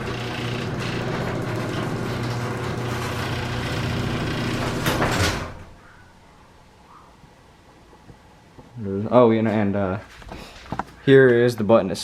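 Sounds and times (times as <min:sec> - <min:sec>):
garage door clattering down: 0:00.0 - 0:05.8
garage door opener motor hum: 0:00.0 - 0:05.8
garage door rattling: 0:00.0 - 0:05.8.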